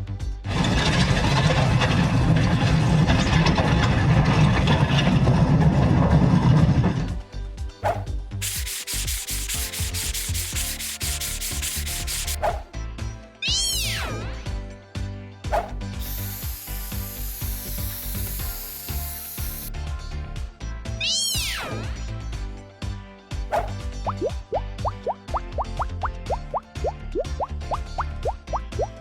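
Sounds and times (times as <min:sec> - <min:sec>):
soft background music: 0:07.0 - 0:29.0
rushing scrubbing noise: 0:07.8 - 0:12.7.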